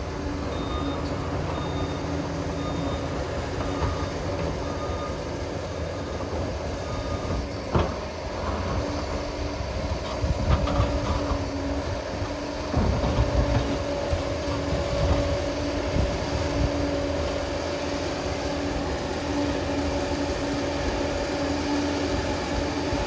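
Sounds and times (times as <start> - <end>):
bulldozer engine running: 0.0 - 23.0
metallic clanks of tracks: 7.3 - 8.8.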